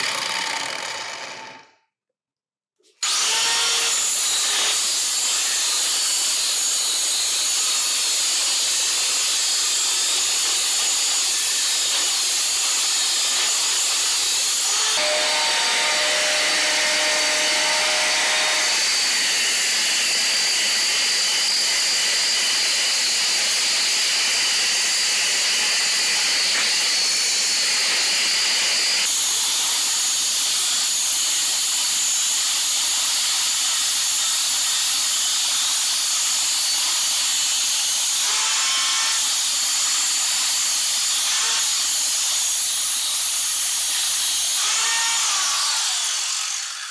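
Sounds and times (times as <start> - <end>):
angle grinder grinding: 3.0 - 21.0, 44.6 - 46.9.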